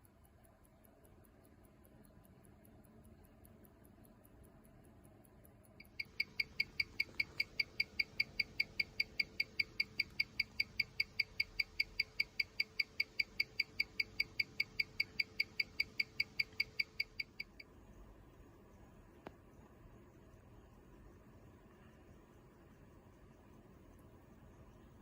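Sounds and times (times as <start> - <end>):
mechanical watch ticking: 0.0 - 17.7.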